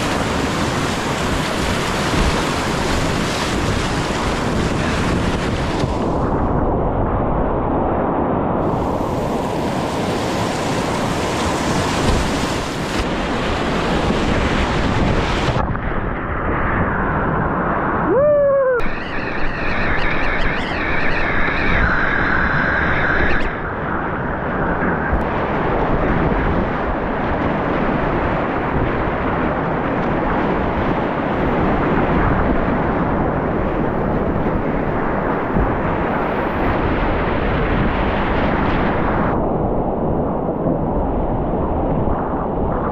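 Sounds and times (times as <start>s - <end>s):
wind buffeting microphone: 0.0s - 42.9s
water rushing in creek: 8.6s - 15.6s
falling tone: 18.0s - 23.6s.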